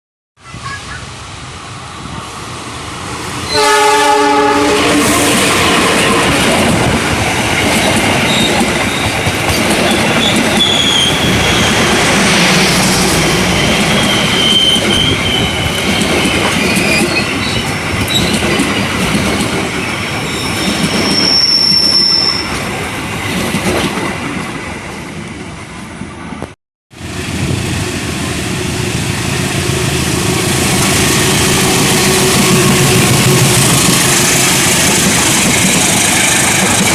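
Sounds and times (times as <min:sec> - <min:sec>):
train horn: 0:03.4 - 0:06.3
train wheels clattering and squealing: 0:06.0 - 0:12.9, 0:13.5 - 0:24.1, 0:30.9 - 0:36.9.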